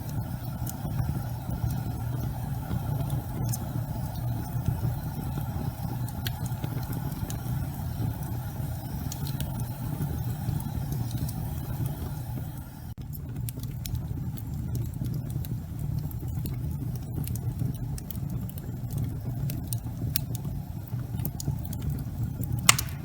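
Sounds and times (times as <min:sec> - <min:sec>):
low rumble of fire: 0:00.0 - 0:23.0
wood fire crackling: 0:00.0 - 0:23.0.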